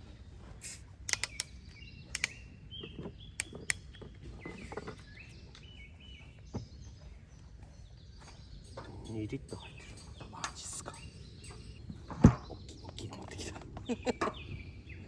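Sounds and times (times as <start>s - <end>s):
sharp clicks or knocks: 1.1s - 5.0s.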